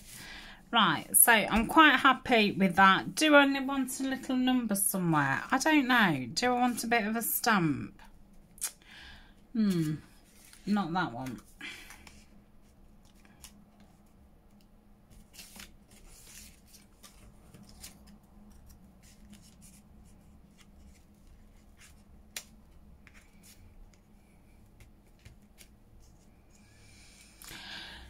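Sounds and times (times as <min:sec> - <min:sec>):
low room hum: 0:00.0 - 0:28.0
paper and card rustling: 0:09.7 - 0:14.0, 0:15.1 - 0:27.6.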